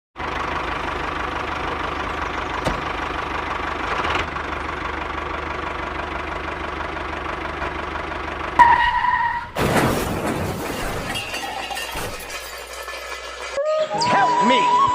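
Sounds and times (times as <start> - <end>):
engine with knocking idle: 0.2 - 8.9
loud crash-like burst: 9.6 - 13.6.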